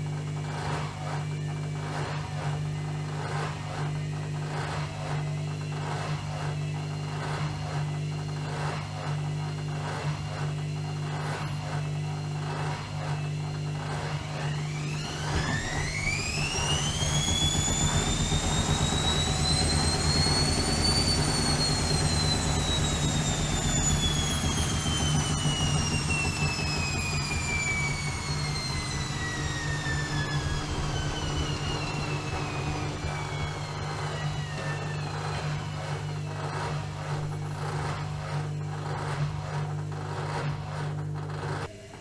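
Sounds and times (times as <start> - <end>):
washing machine motor whining: 0.0 - 42.0
steady low hum: 13.2 - 41.8.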